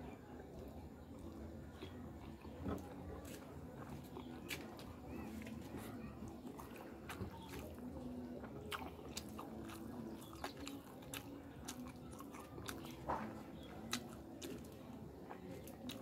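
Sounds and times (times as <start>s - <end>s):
person chewing food: 0.5s - 16.0s
mouth clicks and smacks: 8.7s - 14.8s.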